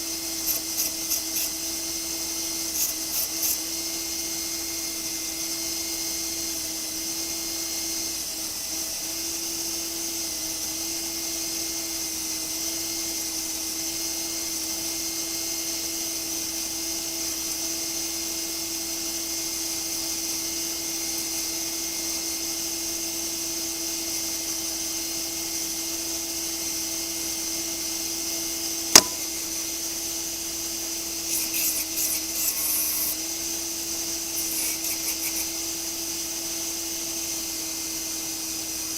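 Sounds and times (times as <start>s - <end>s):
sharp click: 29.0s - 29.7s
electric sander running: 29.0s - 30.0s.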